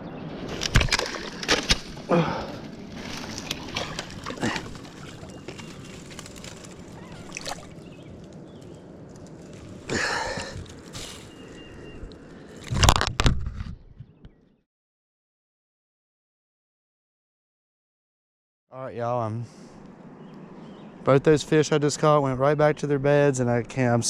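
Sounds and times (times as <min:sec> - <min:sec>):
fish splashing in shallow water: 0:00.5 - 0:02.1, 0:02.8 - 0:07.9
rushing river water: 0:07.2 - 0:07.8.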